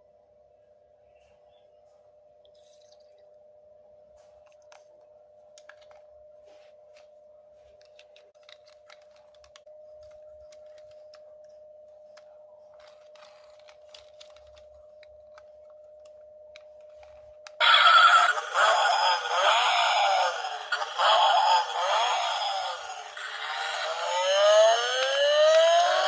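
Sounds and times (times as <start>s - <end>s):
loud synthetic toy music: 17.6s - 26.0s.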